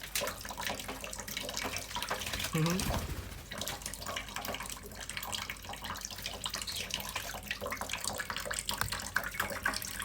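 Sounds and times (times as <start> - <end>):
running water: 0.0 - 10.0
bird splashing in water: 1.5 - 4.6.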